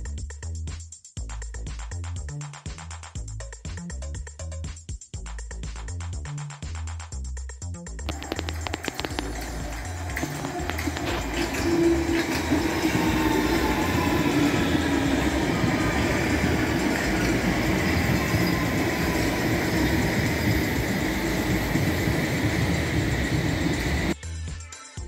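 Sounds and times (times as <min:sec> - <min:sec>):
train wheels rumbling on rails: 0:08.1 - 0:24.2.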